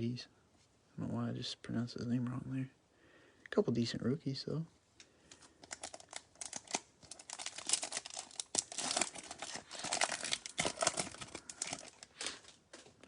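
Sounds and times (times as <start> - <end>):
foil wrapper crinkling and tearing: 5.3 - 12.9.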